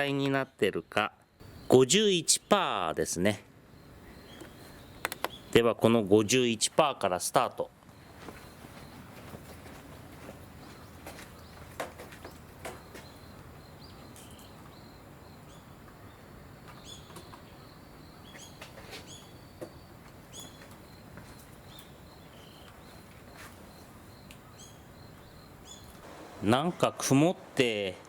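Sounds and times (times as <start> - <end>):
small birds chirping: 0.0 - 28.0
steady background hiss: 0.0 - 28.0.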